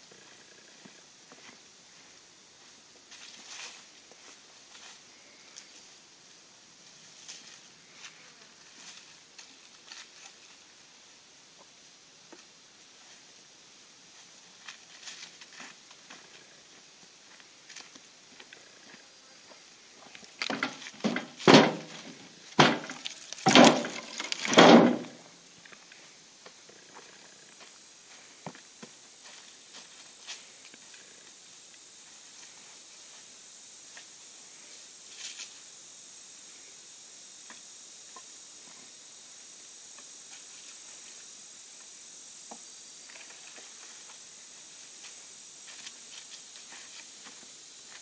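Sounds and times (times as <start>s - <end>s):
crickets and insects chirping: 0.0s - 48.0s
branches crashing: 20.3s - 25.2s
dry branches crunching and rustling: 22.6s - 25.2s.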